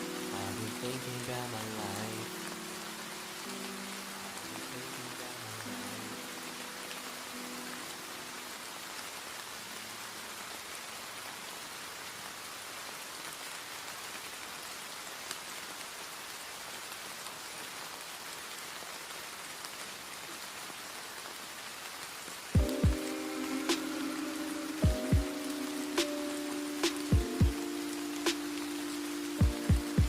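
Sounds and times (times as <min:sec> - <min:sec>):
song playing: 0:00.0 - 0:02.8, 0:22.6 - 0:30.0
rain falling: 0:00.0 - 0:30.0.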